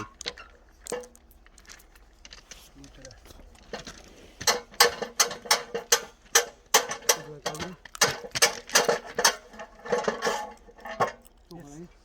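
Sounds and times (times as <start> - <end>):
sharp mechanical clicks and knocks: 3.7 - 11.4.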